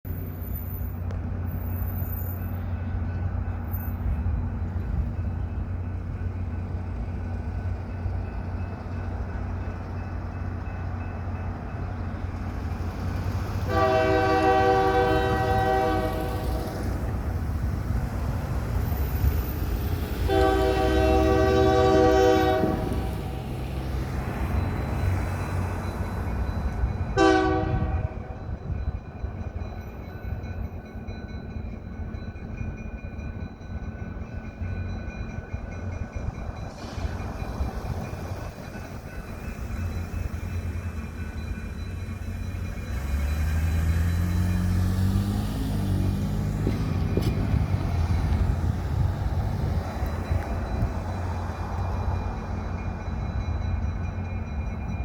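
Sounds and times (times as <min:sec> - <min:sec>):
locomotive engine rumble: 0:00.1 - 0:55.0
locomotive horn chord: 0:13.6 - 0:17.0, 0:20.2 - 0:23.3, 0:27.2 - 0:28.5.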